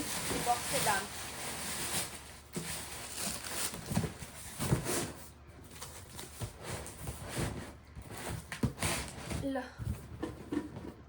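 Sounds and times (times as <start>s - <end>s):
packaging rustling: 0.0s - 7.5s.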